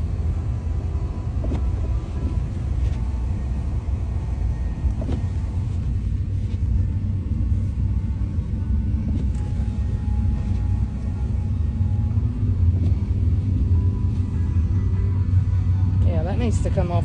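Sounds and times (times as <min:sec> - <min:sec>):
truck engine rumbling from cab: 0:00.0 - 0:17.0.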